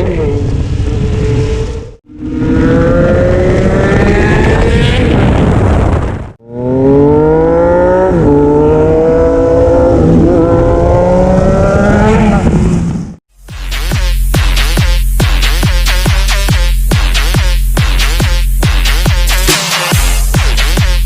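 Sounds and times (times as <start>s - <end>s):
motorcycle engine accelerating: 0.3s - 13.2s.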